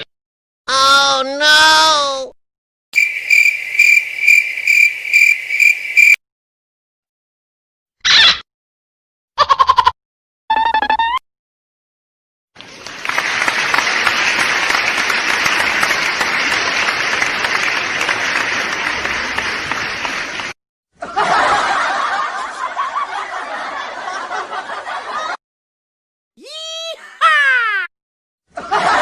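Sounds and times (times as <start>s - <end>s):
audience applauding: 12.6s - 20.6s
audience laughing: 13.0s - 20.4s, 21.0s - 25.4s, 28.6s - 29.0s.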